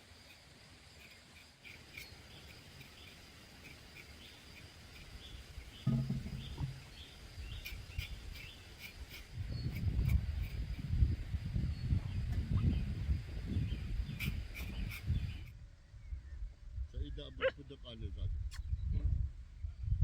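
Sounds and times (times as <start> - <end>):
small birds chirping: 0.0 - 19.0
faint insect hum: 0.0 - 20.0
short low thump: 5.8 - 6.8.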